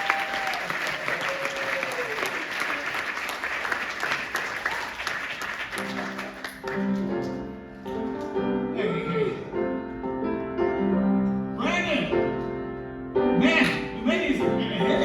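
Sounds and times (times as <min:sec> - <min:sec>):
audience applauding: 0:00.0 - 0:08.3
piano chords: 0:05.2 - 0:15.0.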